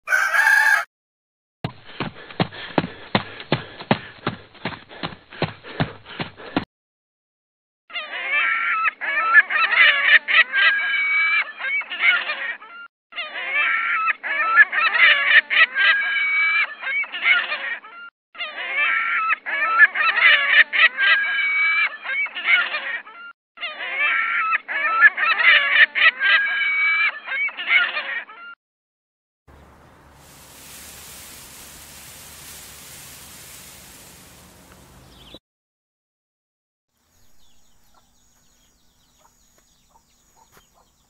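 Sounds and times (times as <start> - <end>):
honking bird calls: 30.4 - 35.4.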